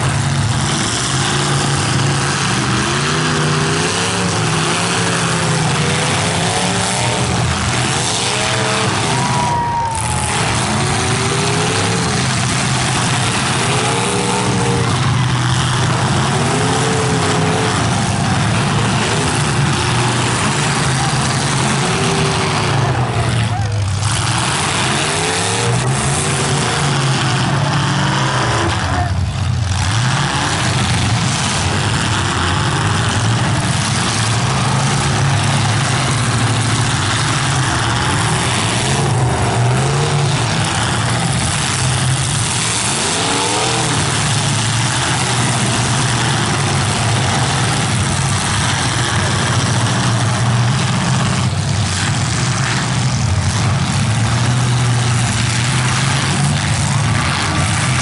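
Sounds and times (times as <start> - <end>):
car engines revving: 0.0 - 58.0
cars ramming each other: 0.0 - 58.0.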